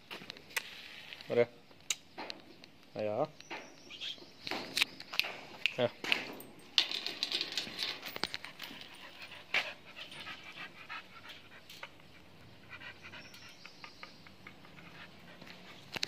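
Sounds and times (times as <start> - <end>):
animal panting rapidly: 8.5 - 15.9.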